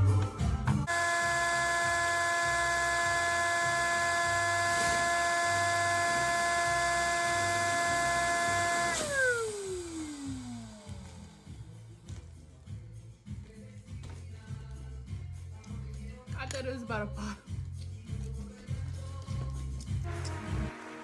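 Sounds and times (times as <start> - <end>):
electric air pump whining: 0.8 - 11.7.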